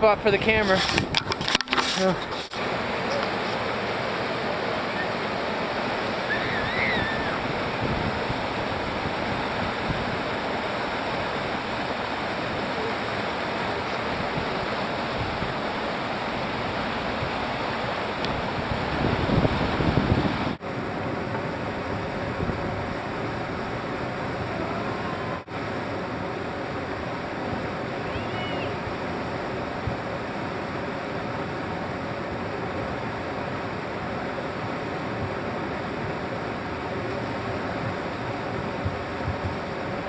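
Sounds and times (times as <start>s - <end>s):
river rapids rushing: 0.0s - 40.0s.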